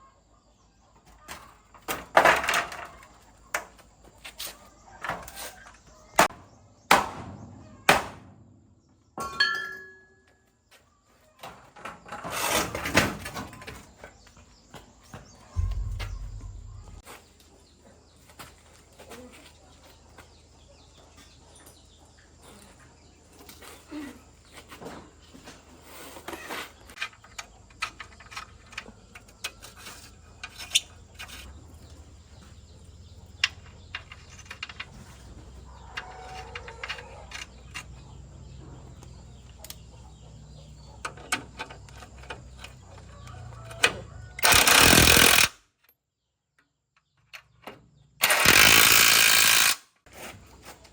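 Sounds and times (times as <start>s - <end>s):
loud burst of noise: 15.6s - 17.0s
low engine rumble: 15.6s - 17.0s
metal tools clicking and knocking: 36.0s - 38.1s, 41.0s - 45.5s.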